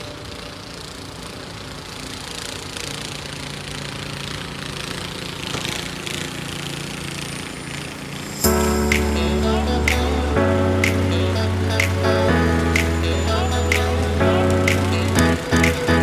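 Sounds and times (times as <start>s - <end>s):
engine humming: 8.4s - 16.0s.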